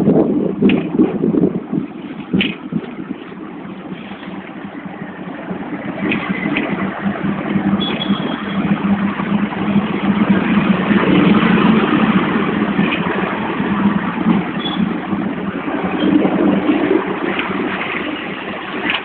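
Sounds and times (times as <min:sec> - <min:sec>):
tram rumbling on rails: 0:00.0 - 0:19.0
high-pitched wheel squeal: 0:07.7 - 0:08.8, 0:14.5 - 0:15.0.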